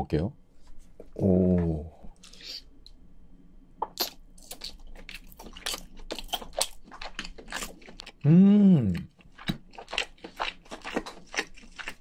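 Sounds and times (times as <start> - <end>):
crunchy chewing: 4.0 - 8.3, 8.9 - 12.0.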